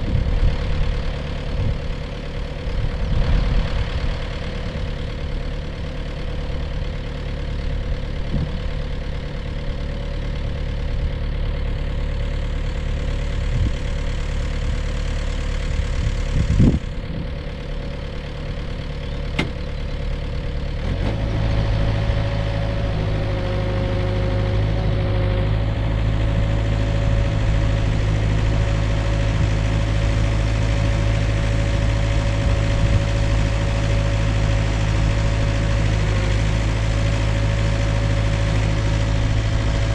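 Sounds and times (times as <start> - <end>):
diesel engine running: 0.0 - 39.9
brief knock: 19.4 - 19.6.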